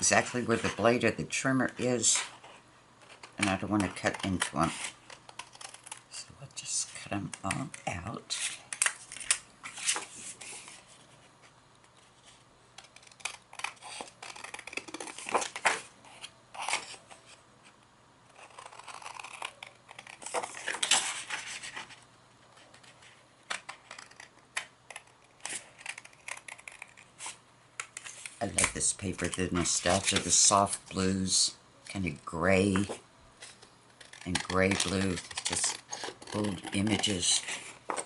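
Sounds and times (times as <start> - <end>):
scissors snipping paper: 3.4 - 6.0, 18.4 - 20.8, 23.6 - 27.0, 34.0 - 37.6
paper rustling: 32.6 - 38.0.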